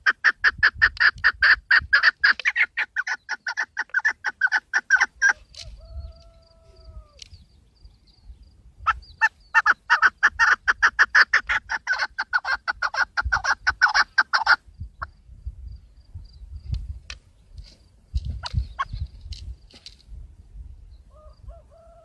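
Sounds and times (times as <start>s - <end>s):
partridge calling: 0.0s - 15.2s, 18.3s - 19.2s.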